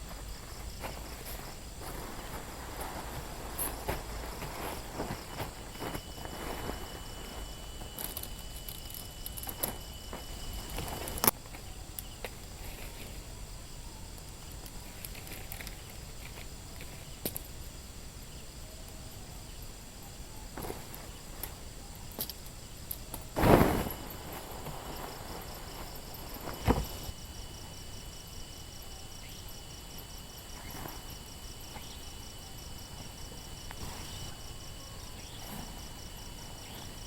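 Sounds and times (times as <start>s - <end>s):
handling clicks and rustles: 0.0s - 13.2s, 20.6s - 27.2s
insects chirping: 0.0s - 37.0s.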